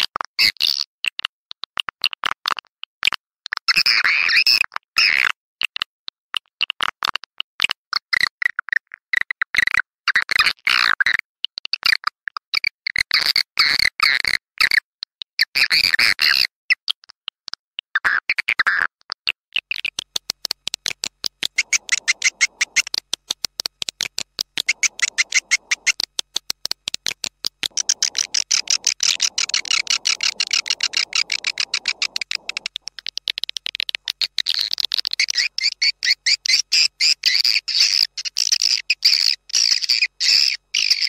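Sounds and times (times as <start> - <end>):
swiftlet chirps and twitters: 21.4 - 41.0.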